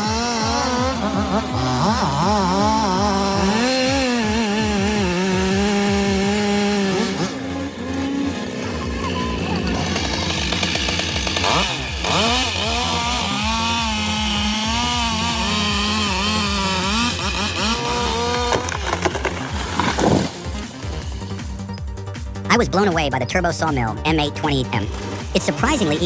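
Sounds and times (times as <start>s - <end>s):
chainsaw cutting wood: 0.0s - 22.5s, 24.7s - 26.0s.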